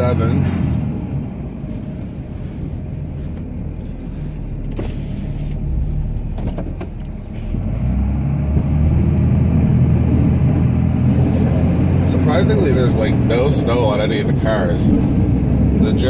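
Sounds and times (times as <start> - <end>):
diesel truck engine under load: 0.0 - 16.0.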